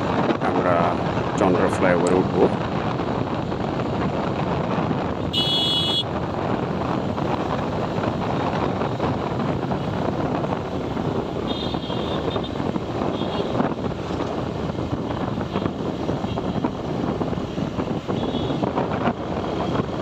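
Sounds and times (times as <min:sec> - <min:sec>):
motorcycle engine and road noise: 0:00.0 - 0:20.0
wind buffeting: 0:00.0 - 0:20.0
vehicle horn: 0:05.3 - 0:06.0, 0:11.4 - 0:13.6, 0:18.2 - 0:18.6.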